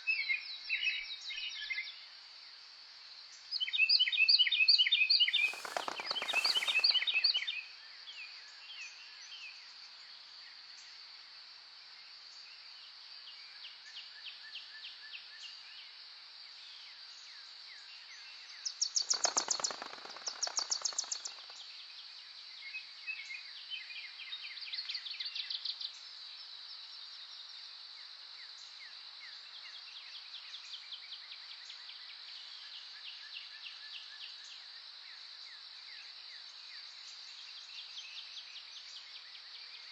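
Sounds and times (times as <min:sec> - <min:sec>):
songbirds trilling: 0:05.3 - 0:07.4.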